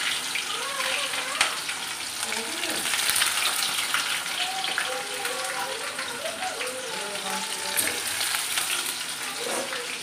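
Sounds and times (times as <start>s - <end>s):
oil spattering crackles: 0.0s - 6.9s
food frying in hot oil: 0.0s - 10.0s.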